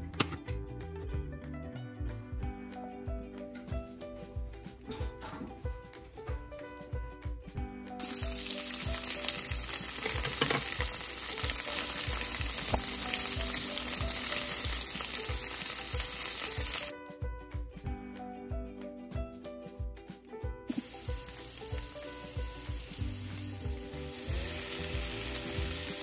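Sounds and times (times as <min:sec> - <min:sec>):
background music with steady beat: 0:00.0 - 0:26.0
tofu sizzling in hot oil: 0:08.0 - 0:16.9, 0:20.7 - 0:26.0.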